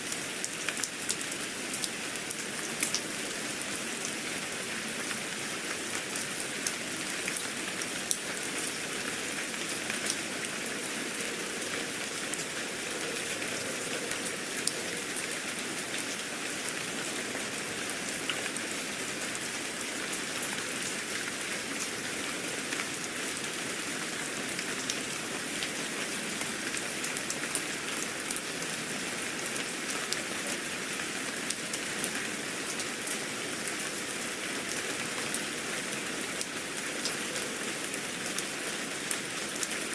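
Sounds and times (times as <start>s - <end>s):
raindrops ticking on surface: 0.0s - 39.9s
rain hissing: 3.2s - 23.1s.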